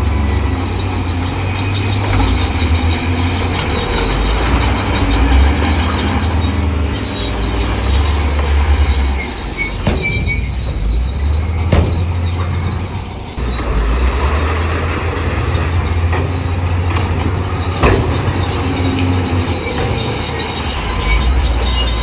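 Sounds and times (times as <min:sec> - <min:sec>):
diesel engine hum: 0:00.0 - 0:22.0
steel tracks squealing and clattering: 0:00.0 - 0:22.0
sharp knocks: 0:09.8 - 0:13.6.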